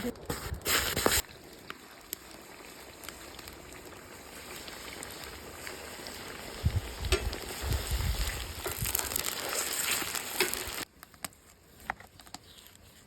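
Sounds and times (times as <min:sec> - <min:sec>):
food sizzling in a pot: 0:01.2 - 0:10.9.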